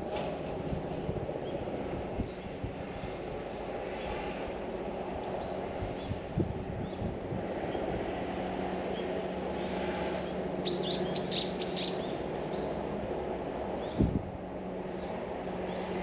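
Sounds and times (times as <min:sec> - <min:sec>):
bird chirping: 0:10.6 - 0:12.7.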